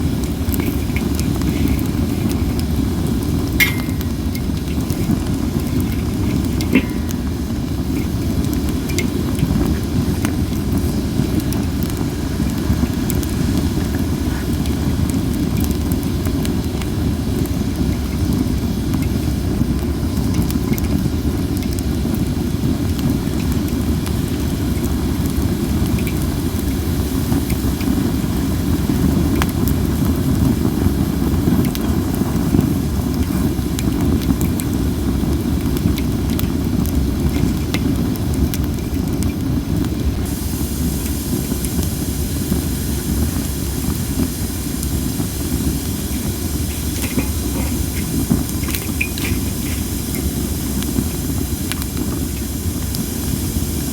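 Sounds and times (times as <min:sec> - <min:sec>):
campfire crackling and popping: 0:00.0 - 0:53.9
firewood hissing: 0:00.0 - 0:53.9.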